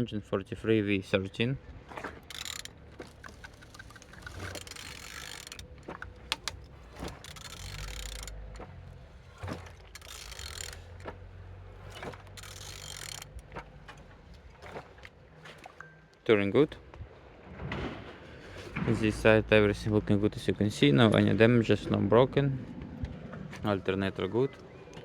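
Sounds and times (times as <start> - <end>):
ratchet wrench clicking: 2.3 - 8.6, 9.9 - 11.0, 11.9 - 13.4.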